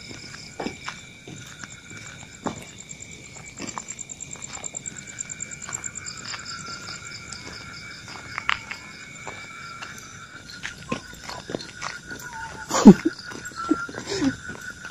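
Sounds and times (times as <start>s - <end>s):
crickets chirping: 0.0s - 14.9s
rapidly pulsing insect trill: 0.0s - 14.9s.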